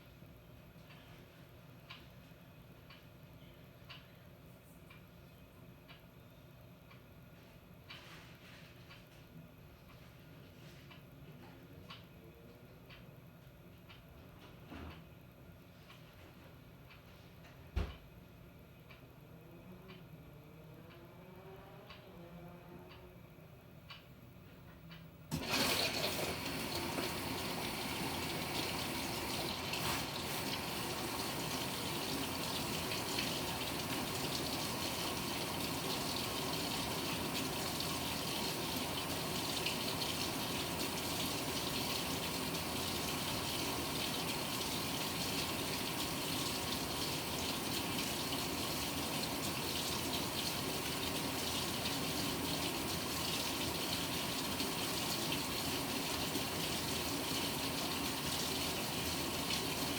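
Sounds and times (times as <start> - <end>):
water pouring into washing machine: 25.3 - 59.9.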